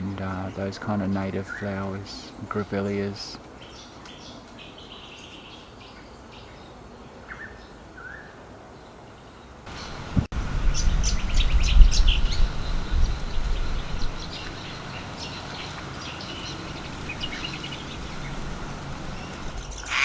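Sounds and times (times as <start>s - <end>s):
birds chirping: 0.0s - 20.0s
passing traffic engine rumble: 9.7s - 19.9s.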